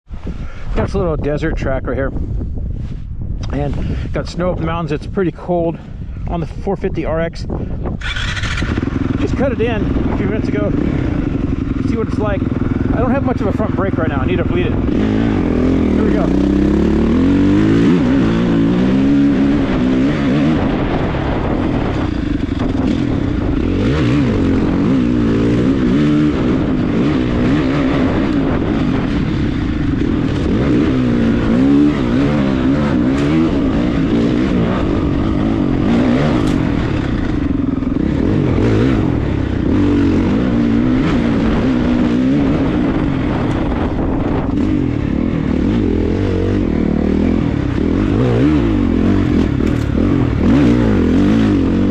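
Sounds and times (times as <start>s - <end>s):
dirt bike engine revving: 7.9s - 51.9s.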